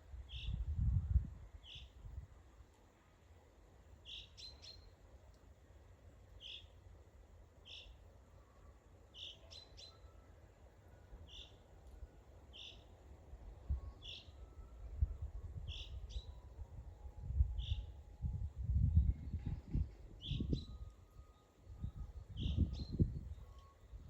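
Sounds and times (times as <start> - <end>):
songbird repeating high call: 12.5 - 12.9.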